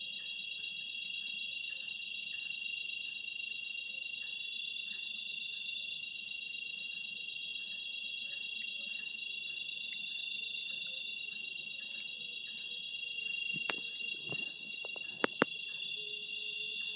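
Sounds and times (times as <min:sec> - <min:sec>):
insects trilling: 0:00.0 - 0:16.9
sharp clicks or knocks: 0:13.6 - 0:15.5.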